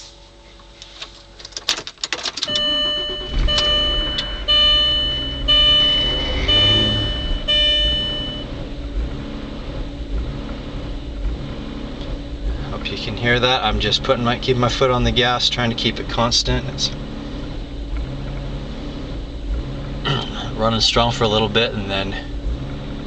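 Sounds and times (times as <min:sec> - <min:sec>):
car engine cranking and running: 0:00.7 - 0:23.0
dashboard warning chime: 0:02.4 - 0:08.8.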